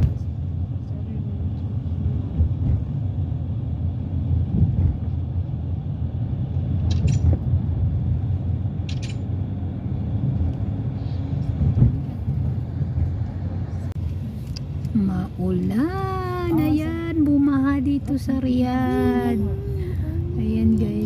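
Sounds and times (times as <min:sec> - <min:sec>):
car rumbling on the move: 0:00.0 - 0:21.0.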